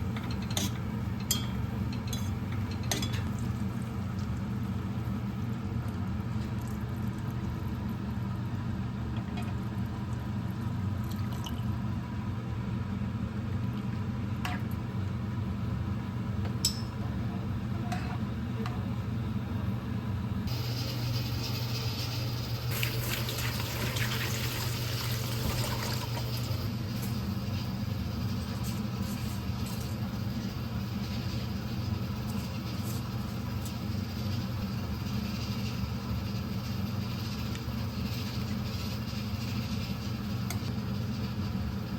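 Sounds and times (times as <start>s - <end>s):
water running: 20.6s - 26.7s.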